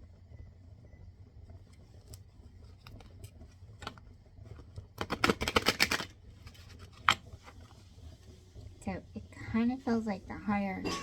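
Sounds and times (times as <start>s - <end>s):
cards being shuffled: 5.0s - 7.7s.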